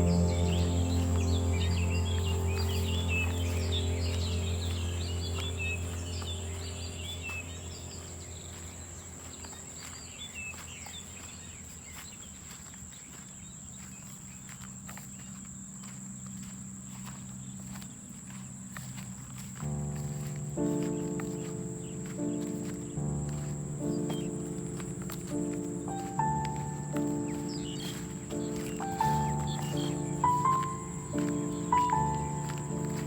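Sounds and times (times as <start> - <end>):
low music drone: 0.0 - 10.6, 18.8 - 33.0
birds chirping: 0.0 - 33.0.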